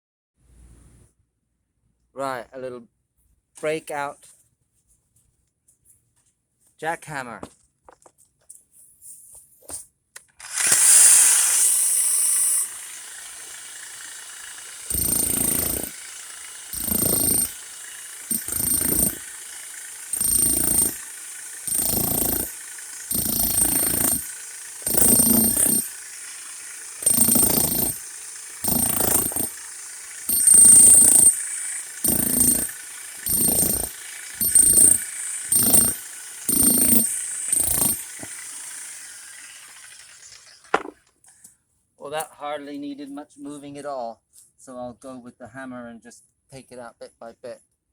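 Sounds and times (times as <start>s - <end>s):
jackhammer hammering: 10.4s - 41.0s.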